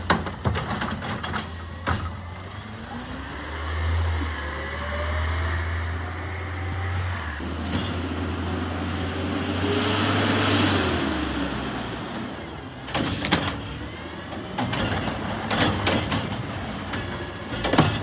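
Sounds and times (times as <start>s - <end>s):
metal clanks and knocks: 0.0s - 2.2s, 12.9s - 18.0s.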